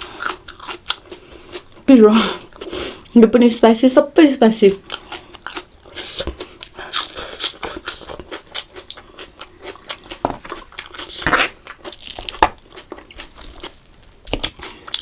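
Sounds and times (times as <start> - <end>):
chewing and biting food: 0.0 - 1.8, 4.8 - 15.0.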